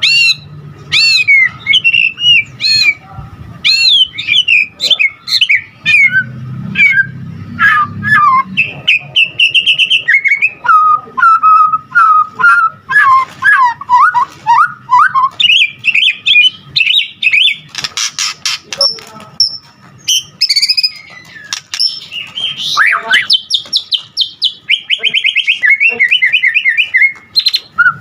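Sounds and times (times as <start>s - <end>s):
bird singing whistled song: 0.0s - 3.0s, 3.6s - 17.7s, 18.8s - 28.0s.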